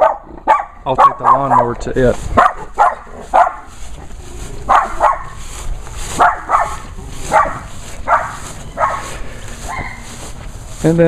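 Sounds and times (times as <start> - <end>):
dog barking: 0.0 - 1.8, 2.4 - 3.8, 4.6 - 5.4, 6.1 - 10.1.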